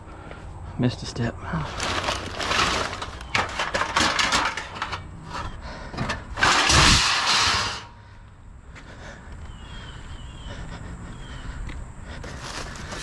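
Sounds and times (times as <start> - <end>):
scrap knocking and clattering: 2.4 - 5.1, 5.9 - 7.9
loud scraping rush: 6.1 - 8.1.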